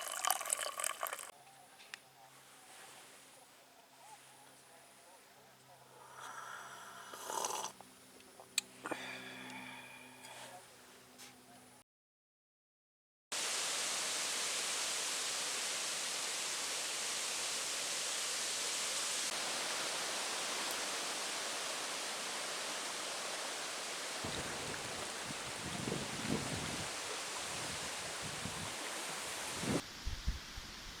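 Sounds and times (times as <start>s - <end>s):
heavy rain hiss: 13.4s - 31.0s
wind buffeting microphone: 24.2s - 30.7s.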